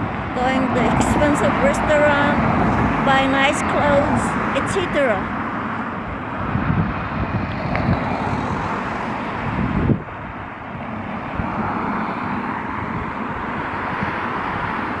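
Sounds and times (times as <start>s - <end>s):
vehicle noise: 0.0s - 15.0s
wind on microphone: 0.0s - 15.0s.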